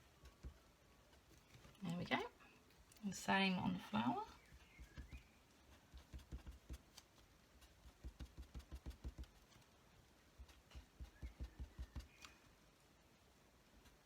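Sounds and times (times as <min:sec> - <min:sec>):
marker stroking on card: 0:04.4 - 0:09.7, 0:10.4 - 0:12.3.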